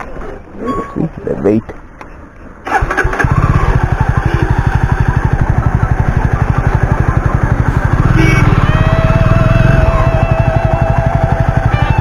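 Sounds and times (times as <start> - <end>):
motorcycle engine idling: 2.7 - 12.0.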